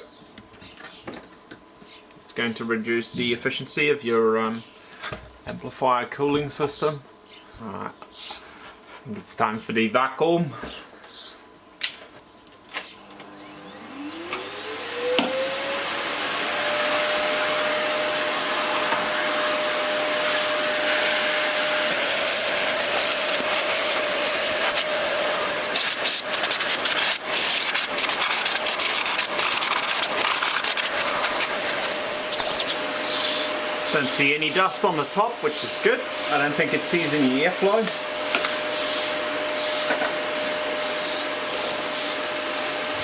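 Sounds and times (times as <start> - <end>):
vacuum cleaner running: 12.7 - 43.0.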